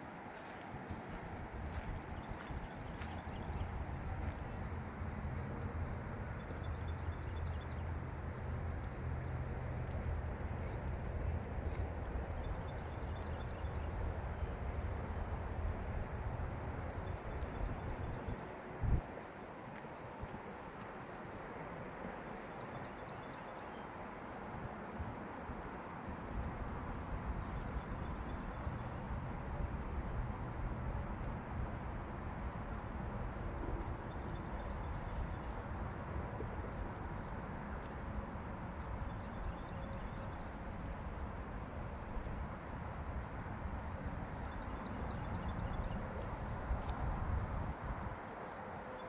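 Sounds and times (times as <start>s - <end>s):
footsteps on path: 0.0s - 22.0s, 25.4s - 39.4s
outdoor background noise: 0.0s - 49.0s.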